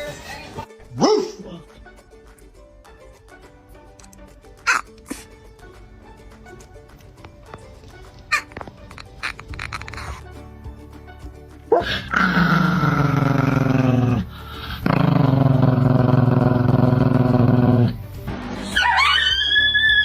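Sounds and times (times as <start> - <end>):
dog whining: 18.6 - 20.0.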